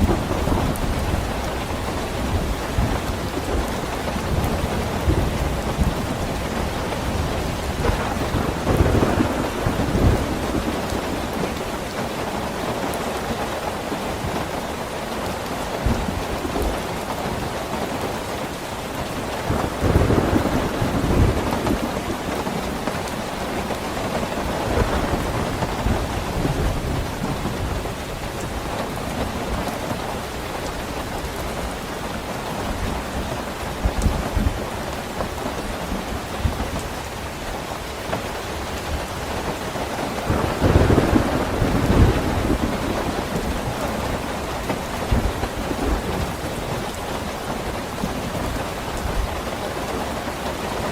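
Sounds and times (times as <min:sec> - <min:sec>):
low rolling thunder: 0:00.0 - 0:13.4, 0:19.2 - 0:34.7, 0:38.8 - 0:49.4
steady rain: 0:00.0 - 0:50.9.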